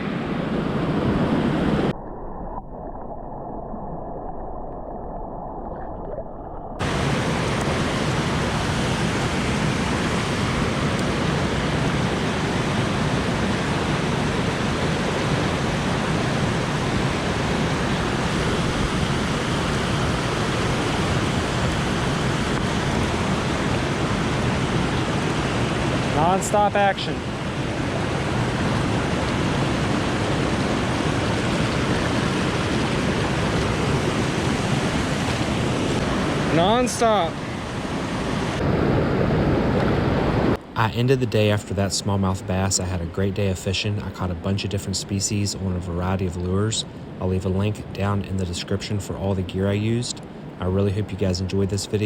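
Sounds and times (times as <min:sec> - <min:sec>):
river water rushing: 0:06.8 - 0:41.0.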